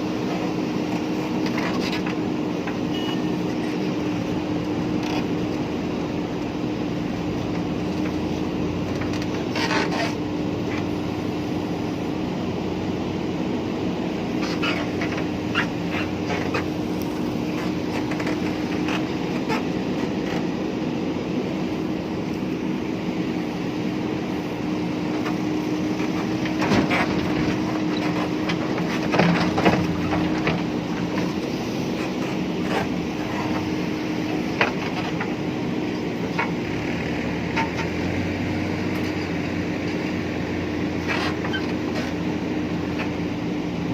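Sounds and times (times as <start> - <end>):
diesel engine running: 0.0 - 43.9
clanks and rattles: 25.2 - 31.4.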